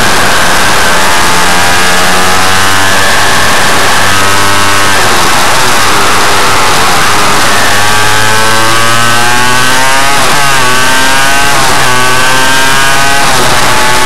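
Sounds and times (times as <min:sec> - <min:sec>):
two-stroke engine accelerating: 0:00.0 - 0:14.0.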